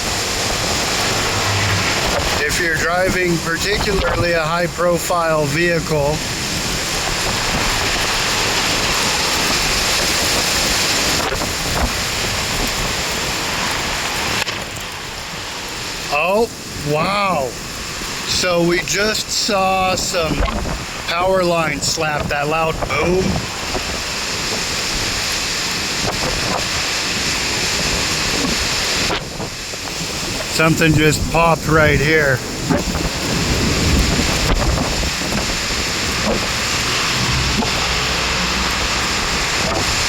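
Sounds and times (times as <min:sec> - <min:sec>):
wind blowing over microphone: 0:00.0 - 0:05.4, 0:16.3 - 0:40.0.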